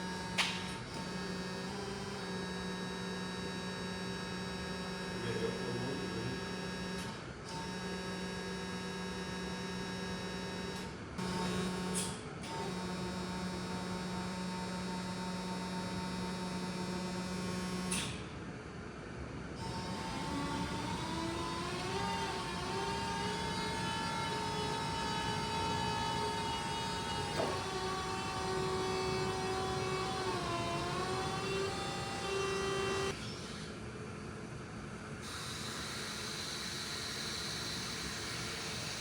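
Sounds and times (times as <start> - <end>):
electric motor hum: 19.6 - 33.7.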